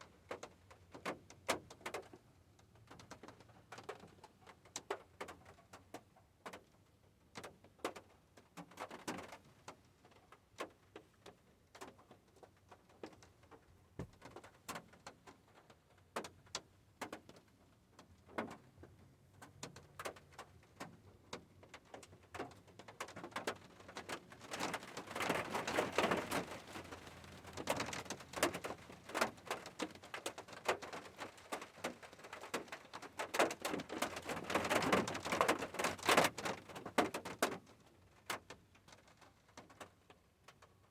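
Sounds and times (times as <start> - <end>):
raindrops tapping on hard surface: 14.0 - 14.5.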